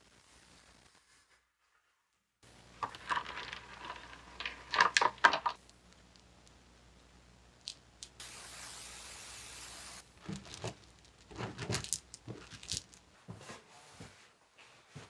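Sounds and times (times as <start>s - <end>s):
steady hiss: 2.4s - 13.2s.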